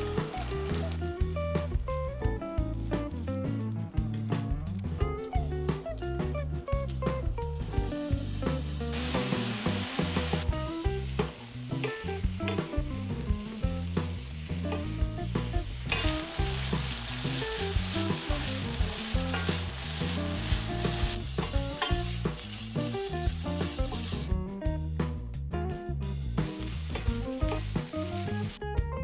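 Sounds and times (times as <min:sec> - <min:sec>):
food sizzling in a frying pan: 0:00.0 - 0:03.7, 0:05.3 - 0:24.3, 0:26.4 - 0:28.6
spatula scraping a pan: 0:15.8 - 0:22.8.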